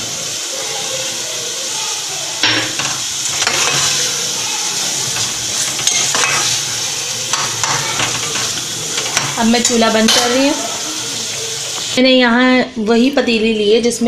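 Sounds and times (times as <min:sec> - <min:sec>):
spices sizzling in hot oil: 0:00.0 - 0:14.0
ladle scraping a metal pot: 0:05.0 - 0:10.4.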